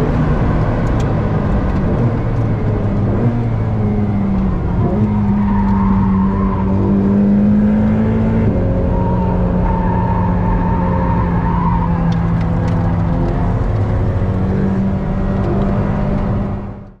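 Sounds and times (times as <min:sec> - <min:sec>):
car engine at steady revs: 0:00.0 - 0:17.0.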